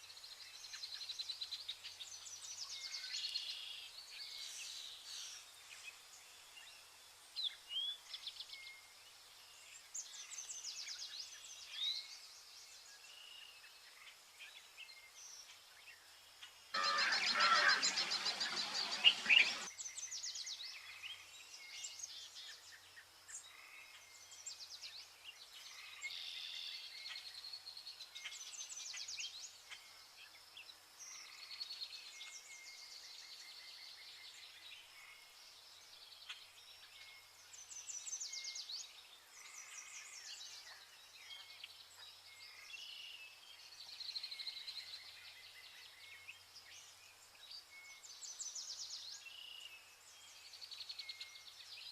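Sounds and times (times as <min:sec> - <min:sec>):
parrots chirping and trilling: 0:16.8 - 0:19.7.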